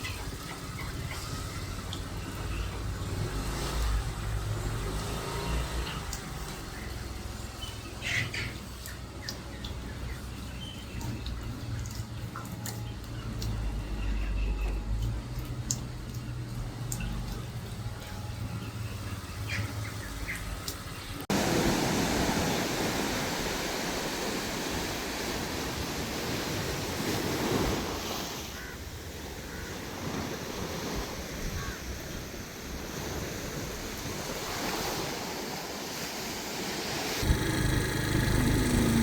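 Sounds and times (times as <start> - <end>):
wind: 0.0 - 39.0
sea surf washing in: 21.3 - 39.0
humming sound: 37.2 - 39.0.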